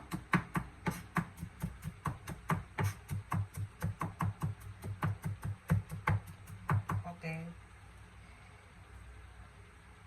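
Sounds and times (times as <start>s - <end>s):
knife chopping on cutting board: 0.1s - 7.0s.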